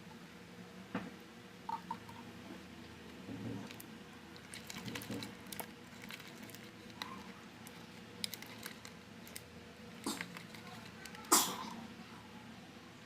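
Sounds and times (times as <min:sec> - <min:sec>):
slime being stirred: 0:03.0 - 0:11.4.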